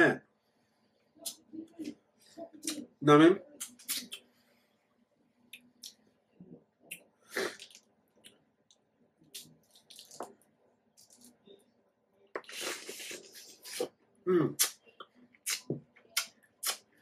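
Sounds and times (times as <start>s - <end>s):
wet mouth sounds eating fruit: 6.9s - 8.4s, 12.3s - 14.0s, 14.6s - 16.8s.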